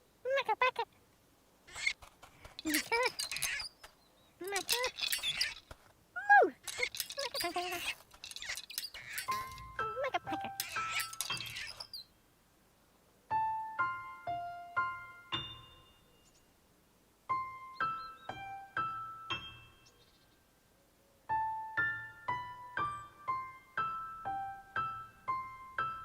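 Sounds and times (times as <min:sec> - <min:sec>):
gentle piano-like notes: 0:13.3 - 0:16.6, 0:17.3 - 0:20.2, 0:21.3 - 0:26.0.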